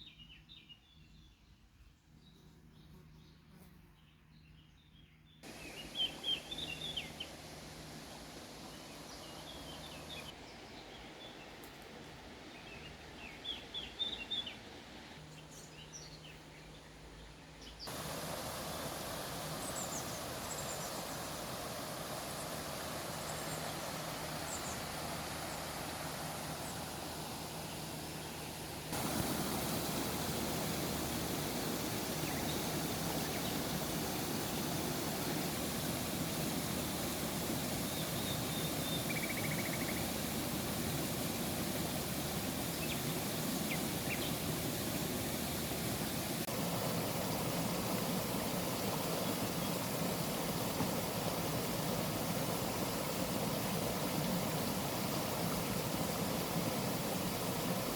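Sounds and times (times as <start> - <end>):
falling water rushing: 5.4 - 10.4, 17.9 - 57.9
birds chirping: 5.4 - 11.8, 12.5 - 57.9.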